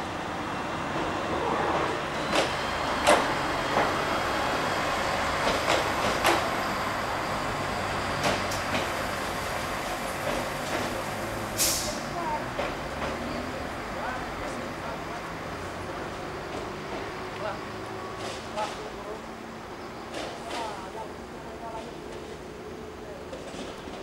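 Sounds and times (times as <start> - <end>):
train rumbling on rails: 0.0 - 24.0
train clanks and knocks: 1.0 - 19.2, 20.0 - 22.4, 23.2 - 24.0
short hiss: 11.5 - 12.0.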